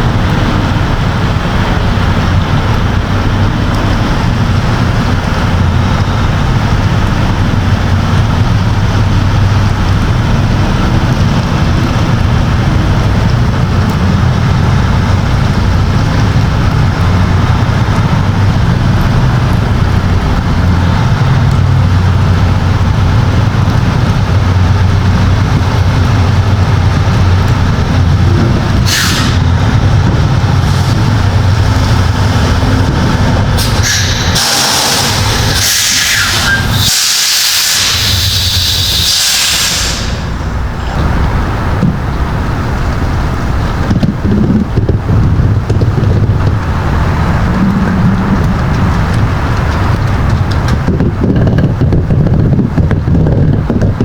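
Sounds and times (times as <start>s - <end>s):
diesel truck engine running: 0.0s - 54.0s
air release hiss: 28.9s - 29.4s, 33.6s - 40.4s.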